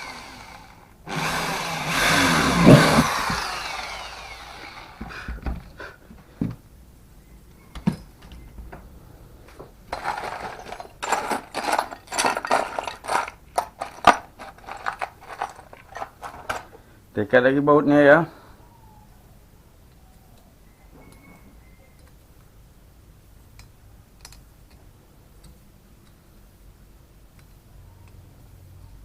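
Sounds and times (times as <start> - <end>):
power tool spinning down: 0.0 - 5.3
metal parts clicking and knocking: 9.9 - 16.8.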